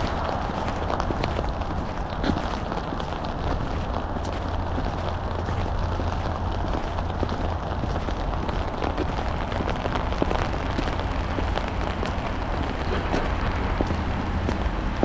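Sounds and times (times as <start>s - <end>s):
low rumble: 0.0s - 15.0s
sleet ticking on surfaces: 0.0s - 15.0s.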